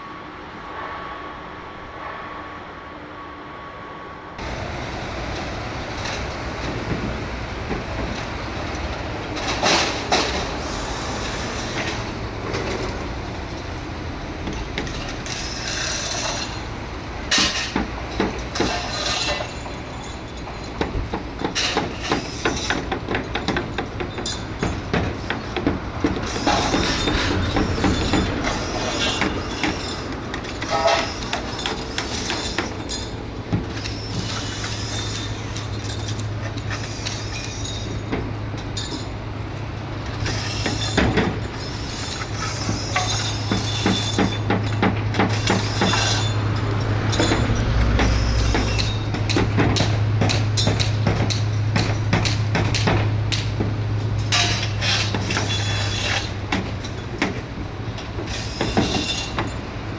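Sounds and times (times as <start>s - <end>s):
metallic clanks and knocks: 17.3s - 34.4s, 40.1s - 59.6s.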